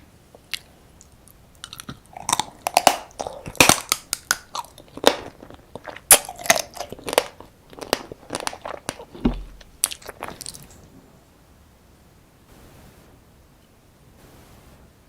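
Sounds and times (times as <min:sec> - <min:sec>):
wet bites and chewing: 0:01.3 - 0:10.8.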